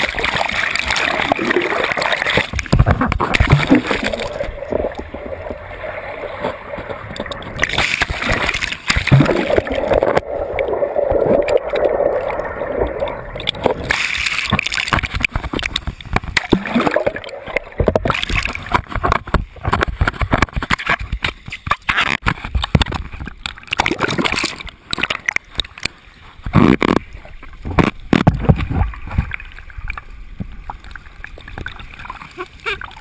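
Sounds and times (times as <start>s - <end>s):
turbulent water splashing: 0.0s - 21.1s.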